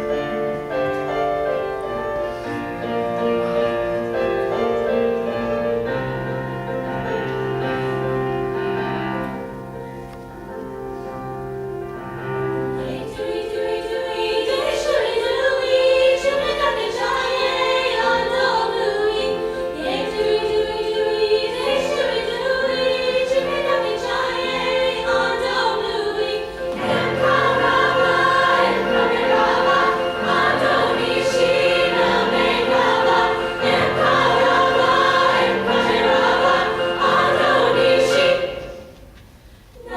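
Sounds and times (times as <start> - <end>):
women's choir singing: 0.0 - 9.8, 12.2 - 39.1
piano accompaniment: 0.0 - 39.9.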